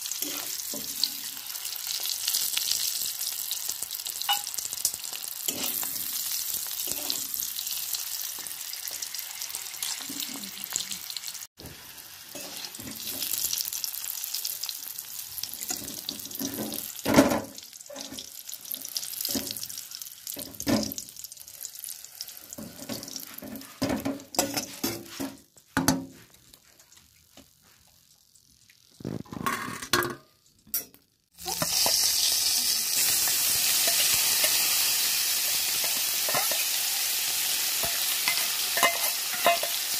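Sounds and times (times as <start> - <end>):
onion sizzling in oil: 0.0 - 29.4, 31.3 - 39.9
eggs sizzling in oil: 0.0 - 29.6, 31.3 - 39.9
metal spatula scraping and knocking: 5.5 - 5.9, 22.6 - 26.2, 37.8 - 39.9.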